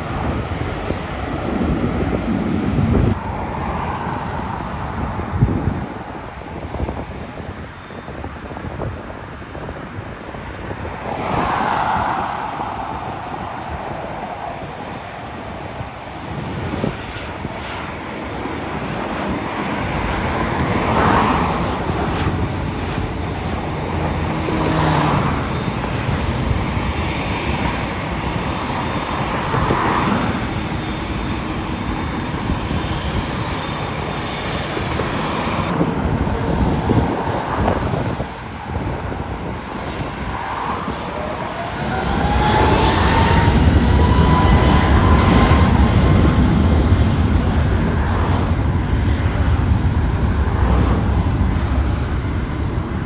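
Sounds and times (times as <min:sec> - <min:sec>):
jet airliner engines whining: 0:00.0 - 0:53.0
vehicles swishing past: 0:03.1 - 0:53.0.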